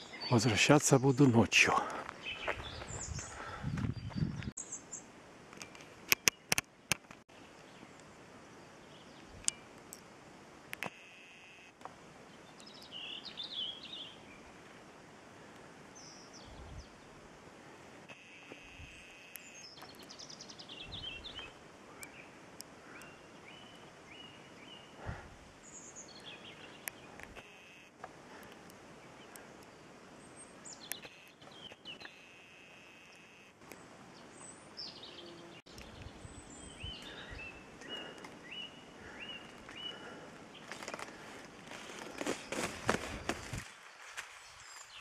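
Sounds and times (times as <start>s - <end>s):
small birds chirping: 0.0s - 10.0s, 12.2s - 14.8s, 15.4s - 17.2s, 18.1s - 45.0s
open-field ambience: 0.0s - 45.0s
sharp clicks: 5.6s - 7.2s.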